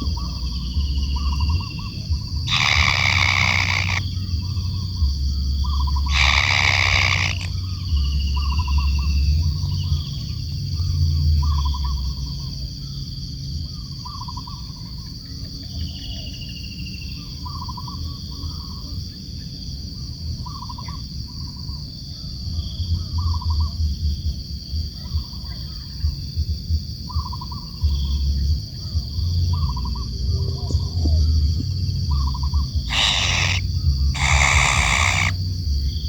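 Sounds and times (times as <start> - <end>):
kingfisher trilled calls: 2.5 - 4.1, 6.1 - 7.5, 32.8 - 35.4
steady high drone: 34.2 - 35.4.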